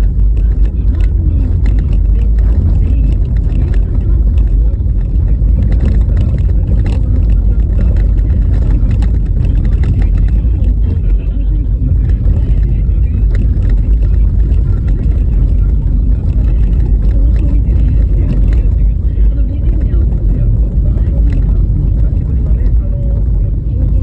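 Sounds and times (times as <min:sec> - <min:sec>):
tyre and road rumble: 0:00.0 - 0:24.0.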